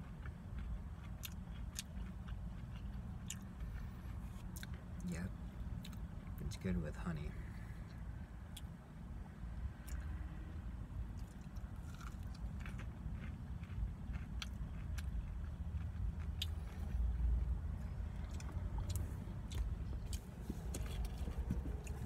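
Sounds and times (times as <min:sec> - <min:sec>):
person chewing crunchy food: 0:00.0 - 0:05.0, 0:11.1 - 0:22.0
steady low rumble: 0:00.0 - 0:22.0.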